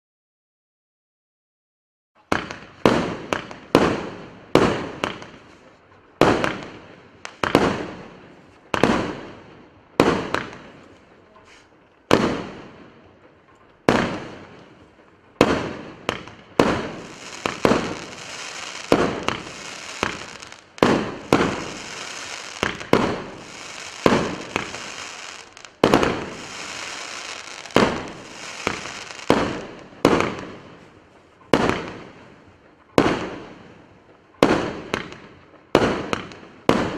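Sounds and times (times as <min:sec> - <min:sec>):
firework bangs: 0:02.3 - 0:11.0, 0:12.1 - 0:13.0, 0:13.8 - 0:33.6, 0:34.4 - 0:36.9
steady high hiss: 0:16.9 - 0:29.9.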